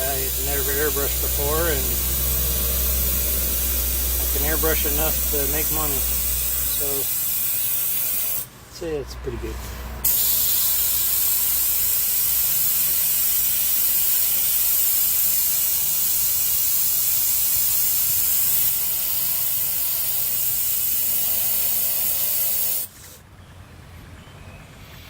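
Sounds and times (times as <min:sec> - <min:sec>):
airbrush hissing: 0:00.0 - 0:08.5, 0:10.0 - 0:22.9.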